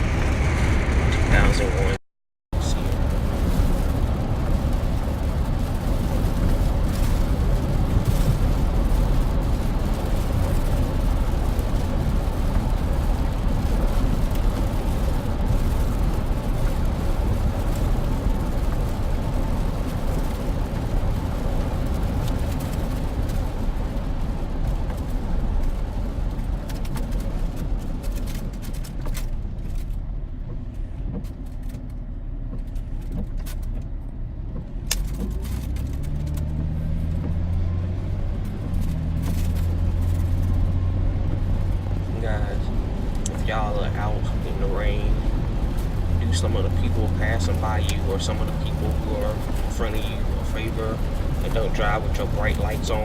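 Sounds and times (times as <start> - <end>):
engine and tyres rumbling: 0.0 - 53.0.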